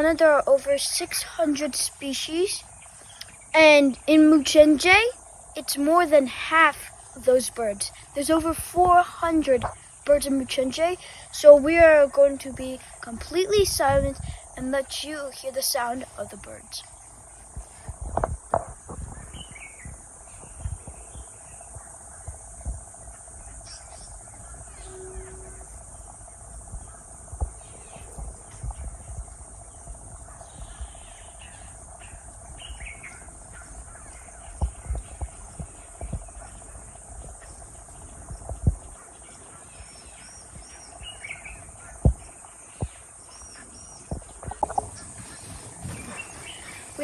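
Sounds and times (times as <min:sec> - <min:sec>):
crickets and insects droning: 0:00.0 - 0:47.0
bird calls and chirps: 0:18.9 - 0:47.0
low steady hum: 0:19.0 - 0:47.0.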